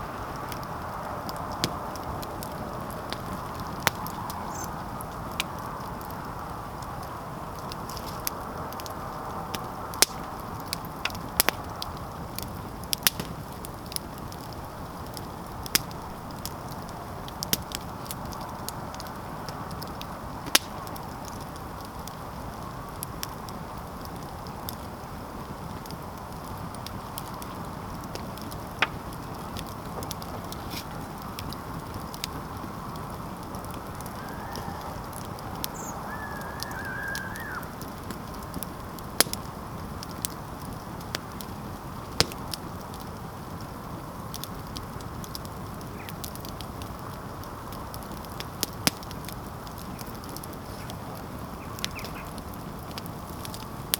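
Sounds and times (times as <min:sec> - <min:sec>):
campfire crackling: 0:00.0 - 0:53.9
wavering whistle-like call: 0:34.1 - 0:35.0, 0:35.7 - 0:37.8.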